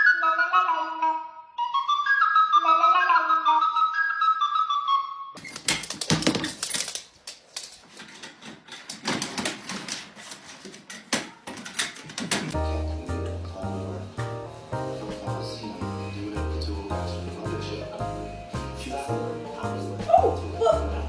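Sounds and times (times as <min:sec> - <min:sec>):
flute-like melody: 0:00.0 - 0:05.4, 0:12.6 - 0:21.0
rapid clicks and clattering knocks: 0:05.4 - 0:12.6.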